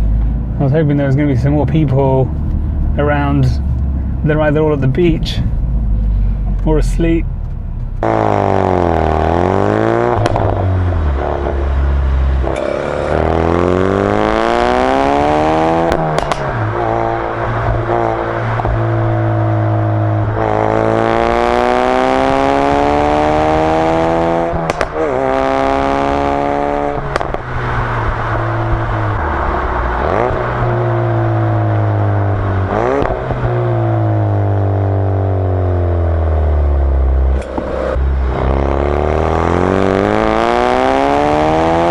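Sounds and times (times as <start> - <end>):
car exhaust accelerating and shifting: 0.0 - 41.9
sharp exhaust pops: 10.1 - 11.7, 15.8 - 19.2, 24.4 - 28.9, 32.7 - 33.7.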